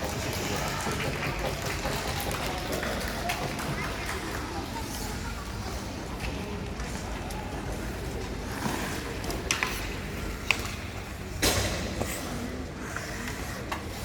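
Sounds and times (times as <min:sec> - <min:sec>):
hockey sticks and puck clacking: 0:00.0 - 0:05.0, 0:08.5 - 0:12.3.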